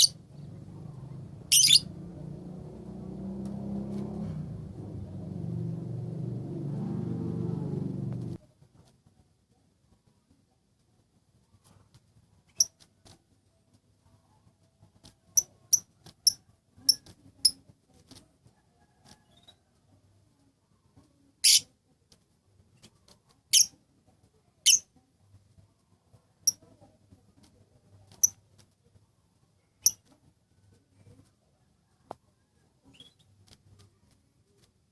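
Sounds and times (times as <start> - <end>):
bird chirping: 0.0 - 0.5, 1.5 - 2.0
harsh bird calls: 1.5 - 1.9.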